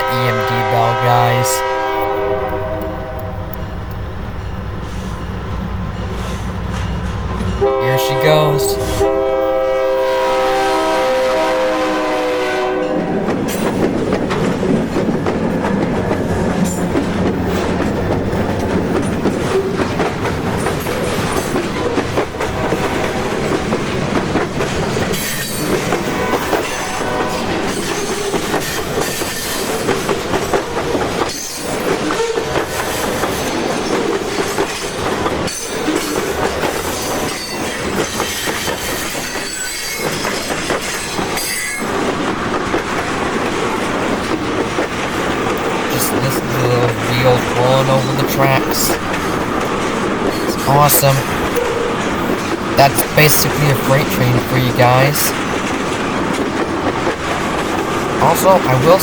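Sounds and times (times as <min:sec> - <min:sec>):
train wheels clattering: 0:13.0 - 0:45.9.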